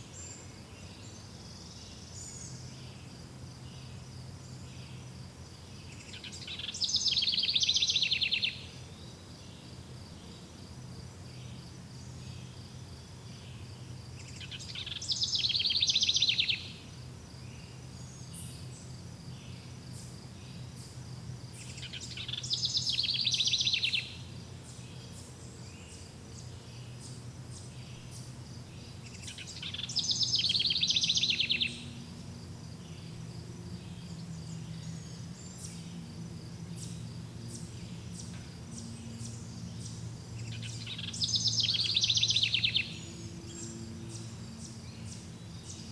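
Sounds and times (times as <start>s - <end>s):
insects chirring: 1.0s - 45.9s
songbird trilling: 5.9s - 8.7s, 14.2s - 16.8s, 21.6s - 24.3s, 27.6s - 32.1s, 36.7s - 45.9s.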